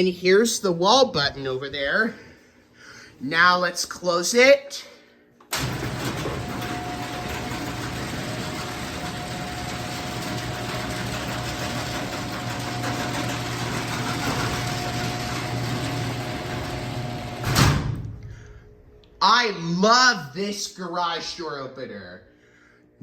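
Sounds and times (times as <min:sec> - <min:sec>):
garage door opener running: 0:05.5 - 0:18.5
garage door thump: 0:05.6 - 0:18.4.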